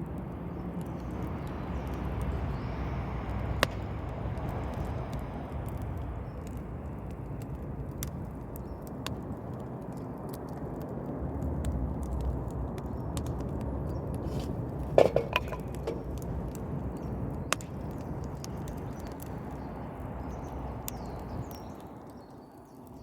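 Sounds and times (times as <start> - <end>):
campfire crackling and popping: 0.0 - 23.0
loud fire snap: 0.8 - 22.4.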